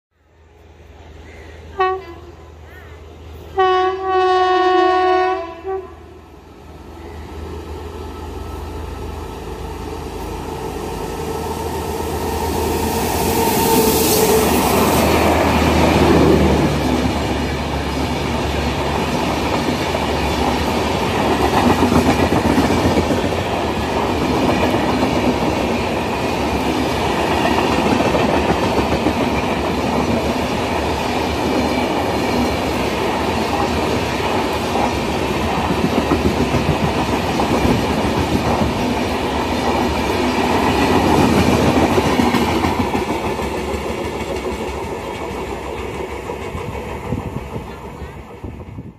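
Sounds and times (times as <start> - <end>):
train rumbling past: 0.2 - 48.9
locomotive horn: 1.8 - 2.5, 3.6 - 6.2.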